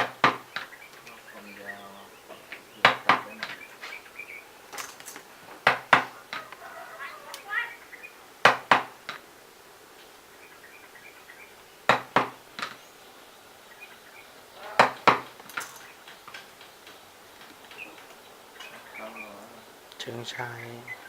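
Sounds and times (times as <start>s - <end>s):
sharp clicks of small parts: 4.7s - 6.6s, 14.8s - 18.7s.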